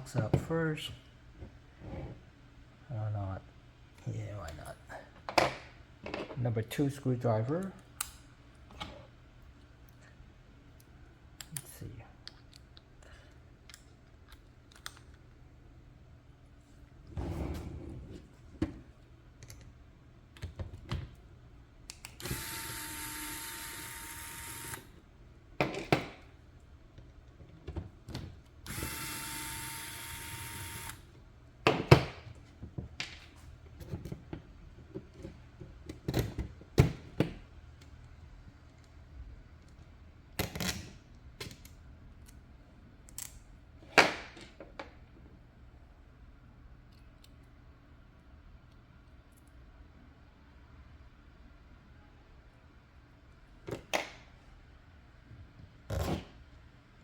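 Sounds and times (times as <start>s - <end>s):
electric screwdriver running: 22.2s - 24.9s, 28.7s - 31.0s.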